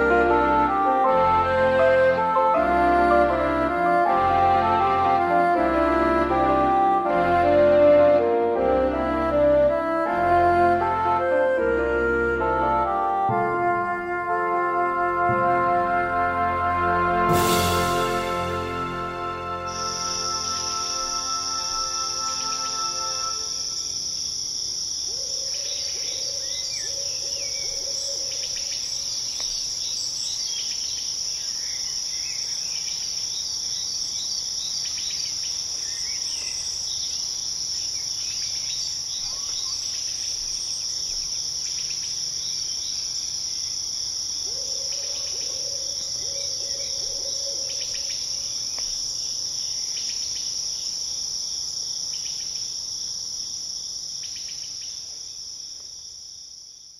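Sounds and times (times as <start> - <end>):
crickets chirping: 18.0 - 56.9.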